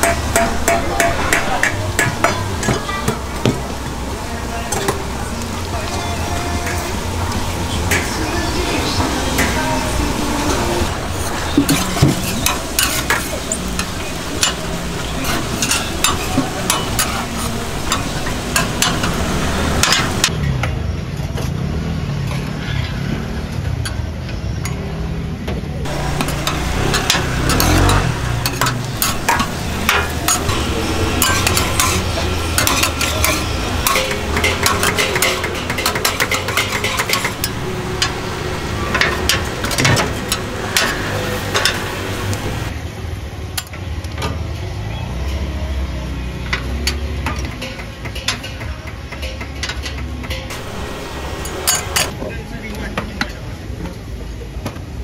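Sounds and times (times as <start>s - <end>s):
metal utensils scraping a pan: 4.7s - 20.3s, 25.9s - 42.7s, 50.5s - 52.1s
food sizzling in a pan: 10.8s - 20.2s, 25.9s - 42.7s, 50.5s - 52.1s.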